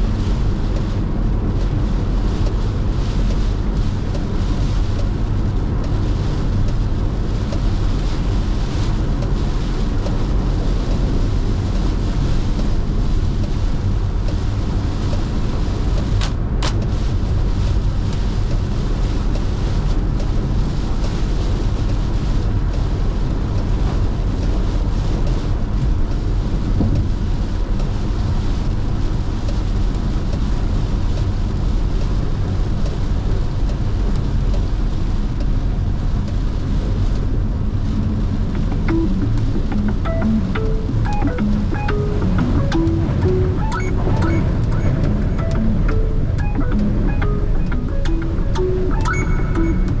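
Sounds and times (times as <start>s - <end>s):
tyres on wet road: 0.0s - 49.3s
rain and wind on car: 0.0s - 50.0s
sharp click: 16.2s - 16.9s.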